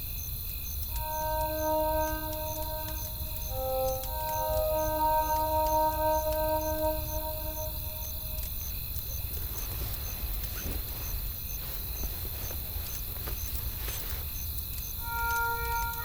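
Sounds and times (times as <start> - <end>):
faint high chirp: 0.9 - 8.5, 15.0 - 16.0
music with held tones: 0.9 - 8.7, 15.0 - 16.0.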